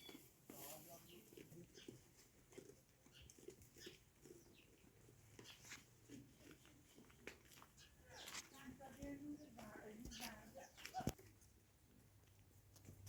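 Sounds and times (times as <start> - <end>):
small animals chirping: 3.1 - 4.6.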